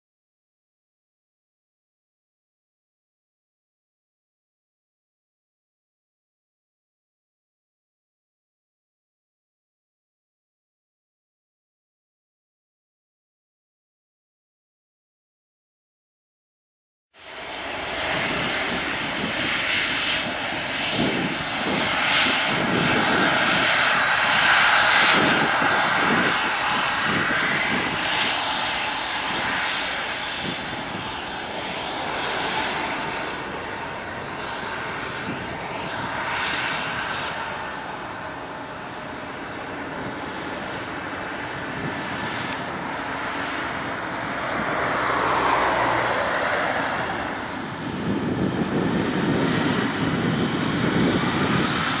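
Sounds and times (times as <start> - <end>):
jet engines rushing and whining: 17.2 - 52.0.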